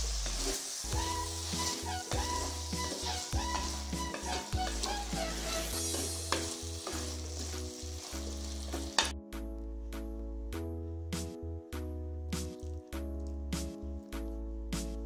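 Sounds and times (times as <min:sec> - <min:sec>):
curry sizzling in a pot: 0:00.0 - 0:09.2
wooden spatula stirring and scraping: 0:00.0 - 0:09.2
background music with steady beat: 0:00.8 - 0:15.0.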